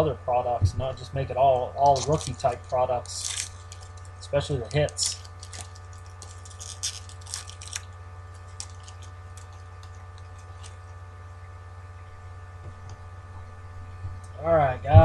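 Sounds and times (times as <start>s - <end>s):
electrical hum: 0.0s - 15.0s
packaging crinkling and clicking: 1.8s - 10.9s.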